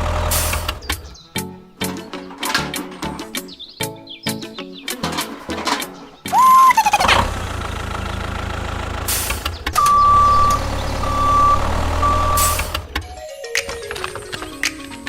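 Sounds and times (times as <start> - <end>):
heavy vehicle engine running: 0.0 - 1.0, 4.9 - 13.0
air brake hiss: 0.3 - 0.8, 9.1 - 9.6
brief high tone: 6.3 - 7.0
reversing alarm beeping: 6.4 - 7.1, 9.8 - 12.8.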